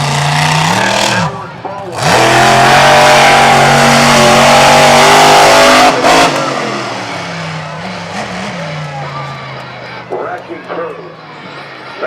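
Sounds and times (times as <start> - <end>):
truck engine revving: 0.0 - 10.7.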